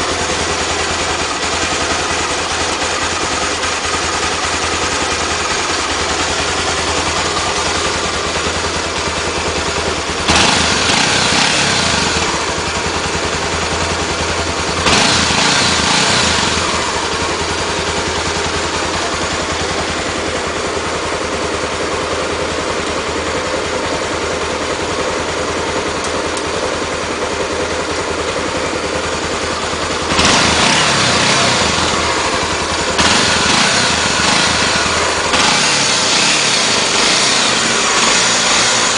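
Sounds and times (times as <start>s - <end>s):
motorcycle engine idling: 0.0s - 38.9s
motorcycle throttle blips: 25.5s - 38.9s.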